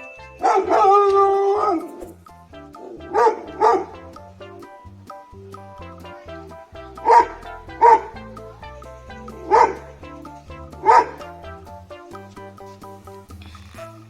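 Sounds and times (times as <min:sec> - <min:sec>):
background music: 0:00.0 - 0:14.0
dog barking: 0:00.4 - 0:02.0, 0:03.0 - 0:04.0, 0:07.0 - 0:08.2, 0:09.3 - 0:10.0, 0:10.7 - 0:11.4.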